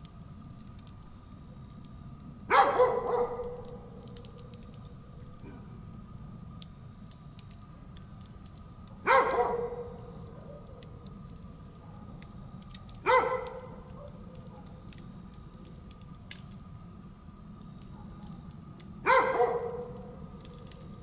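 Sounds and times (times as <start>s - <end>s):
campfire hissing and crackling: 0.0s - 21.0s
dog barking: 2.5s - 4.0s, 9.0s - 10.8s, 11.8s - 12.1s, 13.0s - 14.8s, 19.0s - 20.2s.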